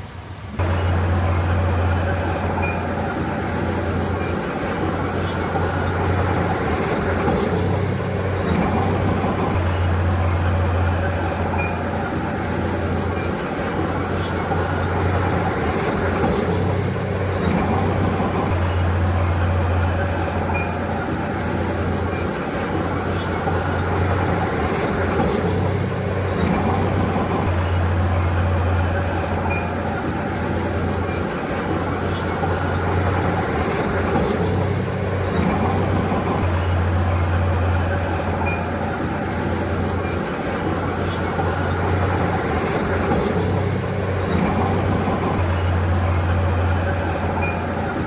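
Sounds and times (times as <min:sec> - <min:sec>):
bulldozer diesel engine running: 0:00.0 - 0:48.0
mechanical clatter: 0:00.5 - 0:48.0.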